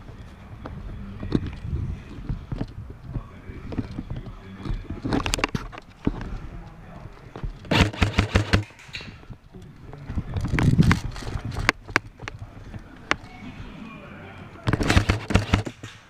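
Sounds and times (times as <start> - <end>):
airsoft gun full-auto bursts: 7.7 - 8.7, 14.8 - 15.8.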